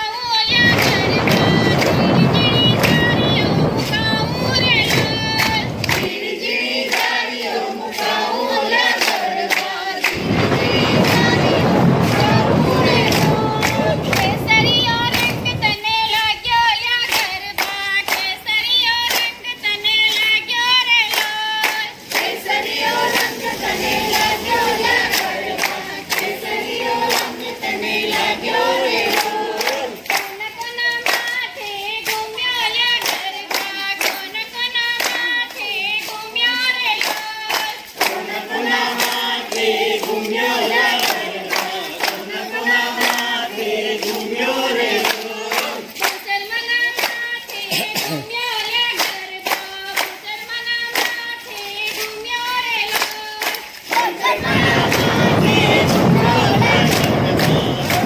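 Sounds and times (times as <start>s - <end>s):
group of voices singing: 0.5s - 15.8s, 21.2s - 30.3s, 37.5s - 46.2s, 53.9s - 58.0s.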